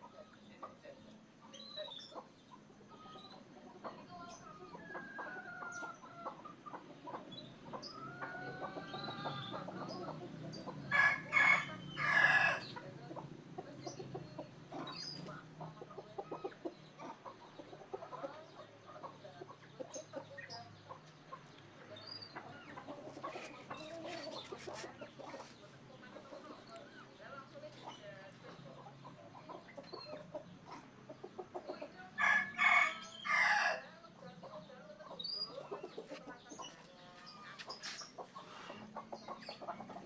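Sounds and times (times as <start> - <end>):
chickens clucking: 0.0 - 40.0.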